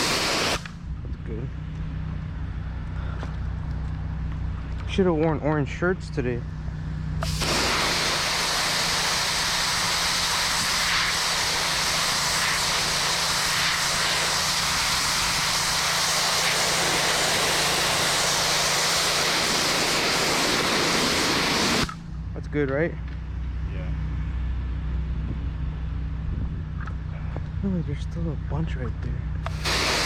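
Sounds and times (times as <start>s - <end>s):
pressure washer jet hissing: 0.0s - 0.7s, 7.2s - 21.9s, 29.5s - 30.0s.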